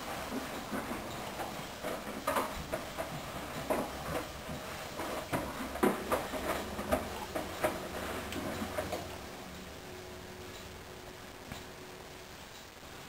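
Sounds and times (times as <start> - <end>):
water sloshing in washing machine: 0.0 - 9.6.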